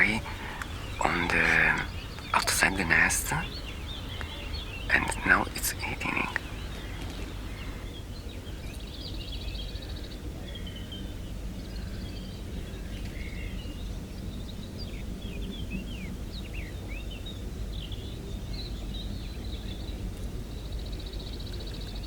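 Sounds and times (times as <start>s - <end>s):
high bird trill: 0.0s - 7.9s
low outdoor rumble: 0.0s - 22.0s
small birds chirping: 0.0s - 22.0s.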